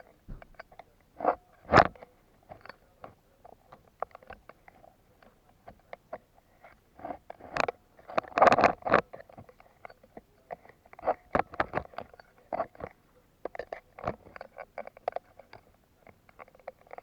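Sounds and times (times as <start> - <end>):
clicks and knocks: 0.2 - 0.8.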